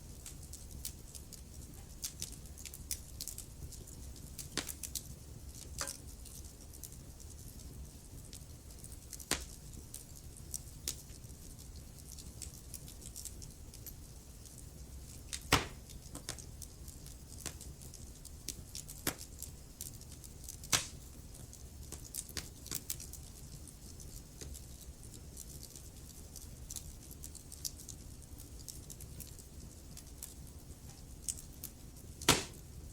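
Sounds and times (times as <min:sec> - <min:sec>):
wood fire crackling: 0:00.0 - 0:32.9
sharp pops of fire: 0:04.4 - 0:05.0, 0:09.2 - 0:09.6, 0:15.3 - 0:16.5, 0:19.0 - 0:19.3, 0:20.6 - 0:21.1, 0:32.2 - 0:32.7.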